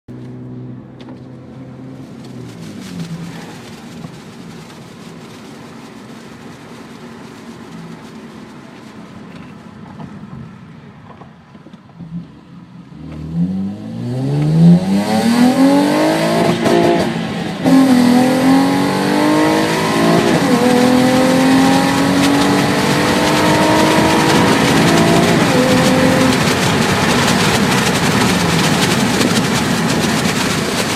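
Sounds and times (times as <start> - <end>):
car exhaust revving through gears: 12.0 - 30.9.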